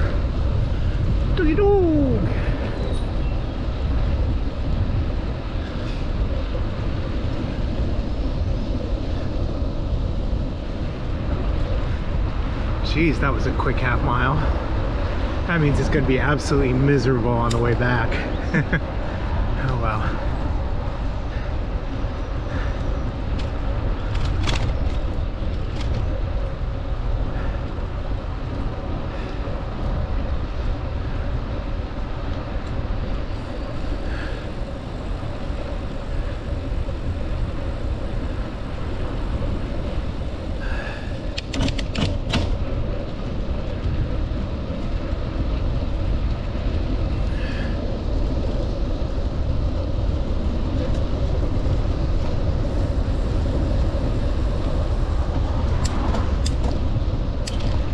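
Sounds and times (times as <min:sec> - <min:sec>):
wind rushing over microphone: 0:00.0 - 0:57.9.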